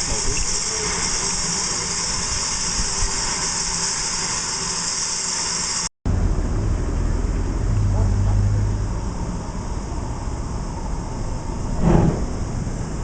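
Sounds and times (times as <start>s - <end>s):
train running with hiss: 0.0s - 5.9s
low engine hum: 6.1s - 13.0s.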